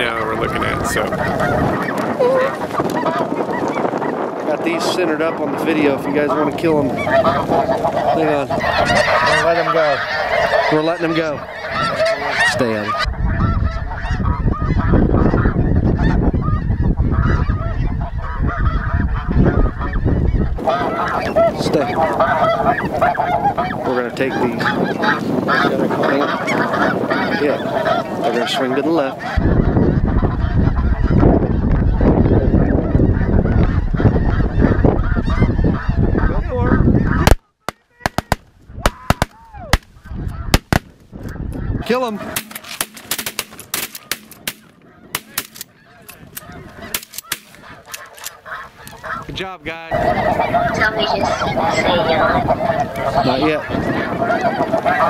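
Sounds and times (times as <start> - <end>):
geese honking: 0.0 - 55.0
sharp cracks: 37.2 - 41.1, 42.2 - 48.4.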